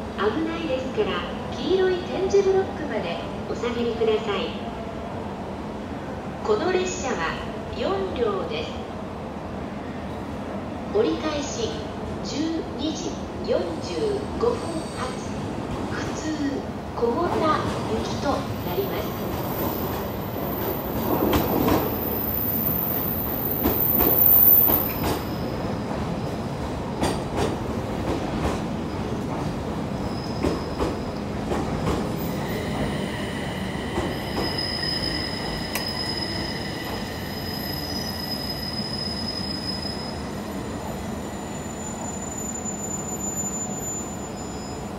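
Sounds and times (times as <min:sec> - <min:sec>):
train whine of high tones: 0:32.2 - 0:44.9
high wheel squeal: 0:32.5 - 0:44.9.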